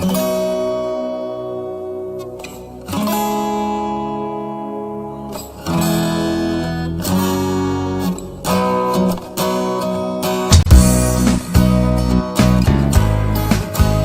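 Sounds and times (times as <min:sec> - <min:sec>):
instrumental cartoon backing track: 0:05.2 - 0:14.0.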